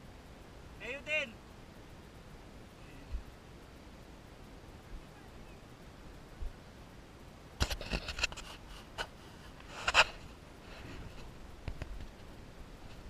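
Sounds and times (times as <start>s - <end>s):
rustling and scraping handling noises: 7.6s - 13.0s.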